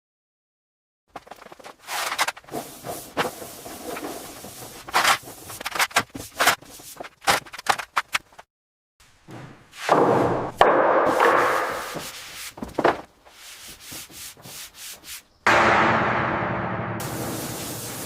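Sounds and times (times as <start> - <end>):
scrapes and sharp knocks: 9.3 - 13.1.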